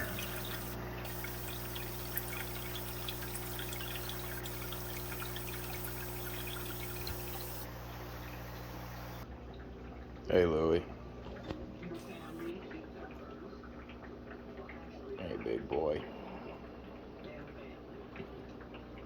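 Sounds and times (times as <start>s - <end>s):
steady low hum: 0.0s - 9.3s
water trickling and splashing: 0.0s - 10.2s.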